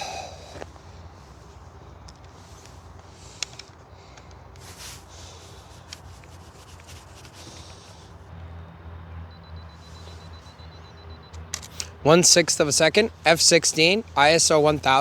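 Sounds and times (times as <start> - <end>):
camera handling rubbing: 2.0 - 8.2.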